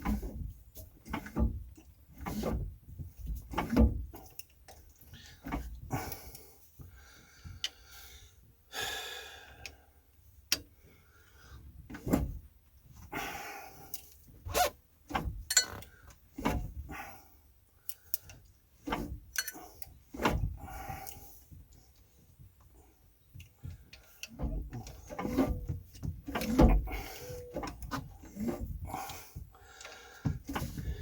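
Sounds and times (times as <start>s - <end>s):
tools clanking: 15.1s - 16.7s, 18.8s - 20.6s, 24.0s - 29.2s
scraping and creaking: 24.3s - 31.0s.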